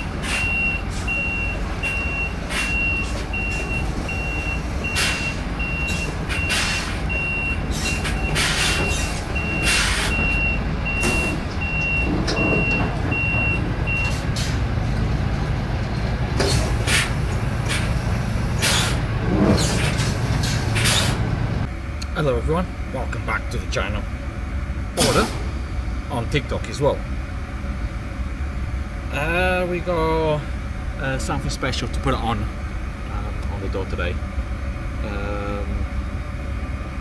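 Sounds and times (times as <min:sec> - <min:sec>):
reversing alarm beeping: 0:00.0 - 0:14.6
diesel engine running: 0:00.0 - 0:37.0.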